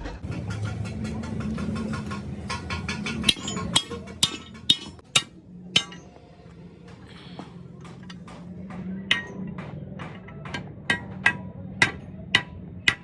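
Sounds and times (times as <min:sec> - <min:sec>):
hammer striking steel: 0:02.0 - 0:06.1, 0:09.1 - 0:13.0.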